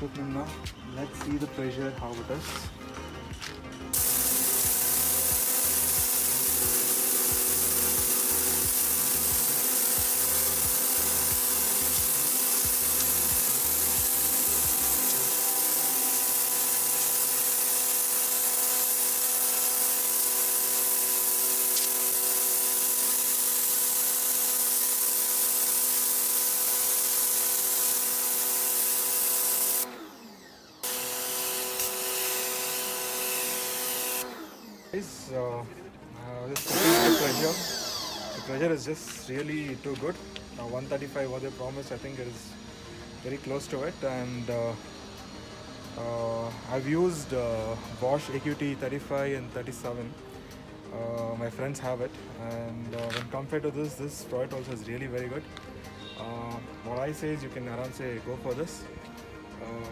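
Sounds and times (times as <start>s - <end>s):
pressure washer motor humming: 0.0s - 59.9s
high-pressure water spray hissing: 3.9s - 29.9s, 30.8s - 34.3s, 36.6s - 49.1s.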